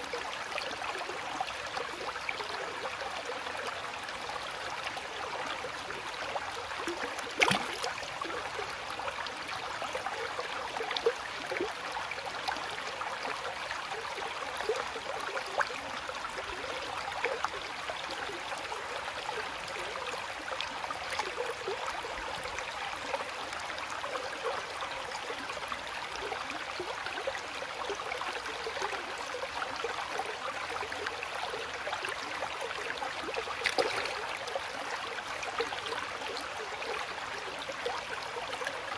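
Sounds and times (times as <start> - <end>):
shallow water babbling: 0.0 - 38.9
water splash: 7.4 - 7.9, 33.6 - 34.2.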